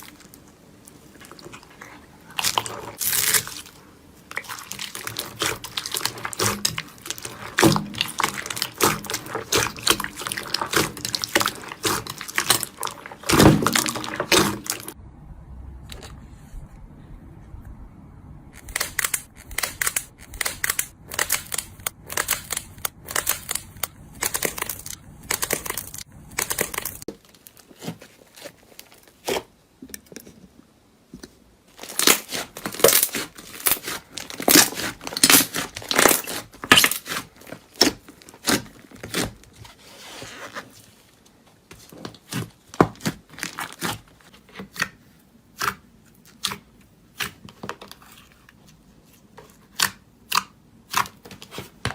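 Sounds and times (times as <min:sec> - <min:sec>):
crunchy material crackling: 0:00.0 - 0:15.0, 0:18.6 - 0:29.5, 0:31.7 - 0:44.7.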